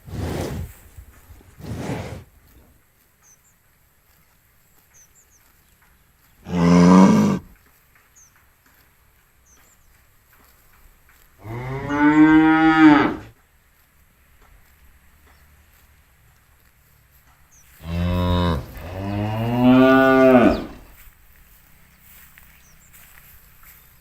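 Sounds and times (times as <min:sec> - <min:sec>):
cattle mooing: 0:06.4 - 0:07.5, 0:11.4 - 0:13.3, 0:17.8 - 0:20.9.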